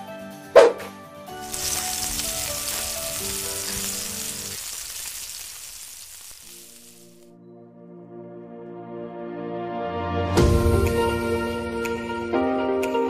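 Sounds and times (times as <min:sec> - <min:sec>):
food sizzling in a pan: 0:01.4 - 0:07.3.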